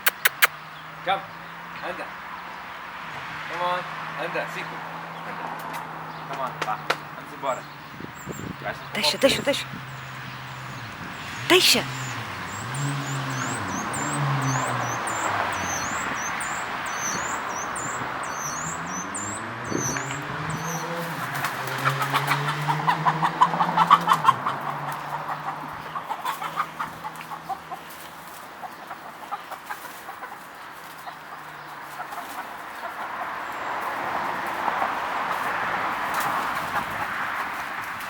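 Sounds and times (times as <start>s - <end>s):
chickens clucking and squawking: 20.8s - 33.4s.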